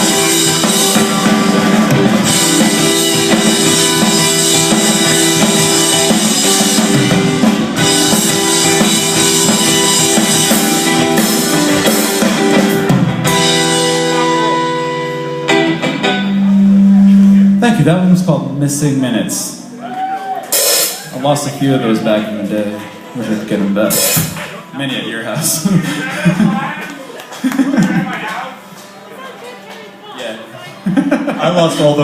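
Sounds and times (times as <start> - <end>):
held guitar chord ringing: 0.0 - 20.4
rock band playing: 0.0 - 32.0
steady low tone: 14.8 - 19.8.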